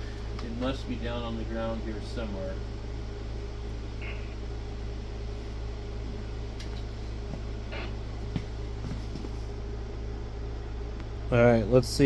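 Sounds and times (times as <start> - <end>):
fan whooshing: 0.0 - 12.0
low electrical hum: 0.0 - 12.0.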